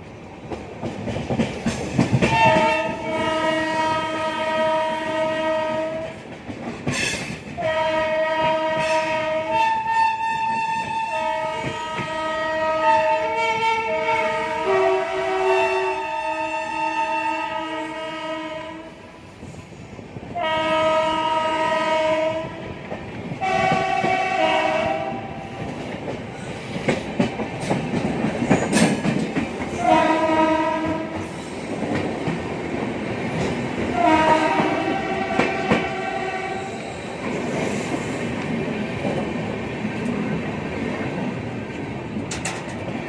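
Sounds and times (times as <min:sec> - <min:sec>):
train wheels clattering: 0:00.0 - 0:12.7, 0:21.5 - 0:43.0
train horn blasts: 0:02.2 - 0:06.2, 0:07.6 - 0:19.3, 0:20.4 - 0:22.8, 0:23.4 - 0:25.6, 0:29.8 - 0:31.2, 0:33.9 - 0:36.9.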